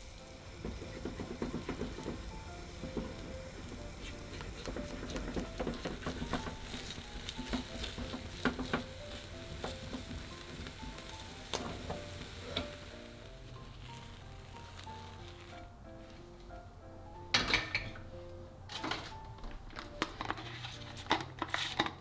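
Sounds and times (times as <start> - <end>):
food sizzling in a frying pan: 0.0 - 18.2
soft piano music: 0.0 - 22.0
utensil clicking against pan: 0.1 - 15.0, 18.7 - 22.0.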